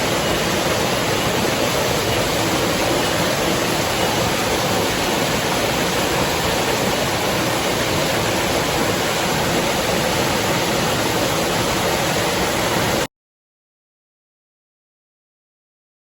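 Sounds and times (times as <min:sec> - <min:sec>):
river water rushing: 0:00.0 - 0:13.1.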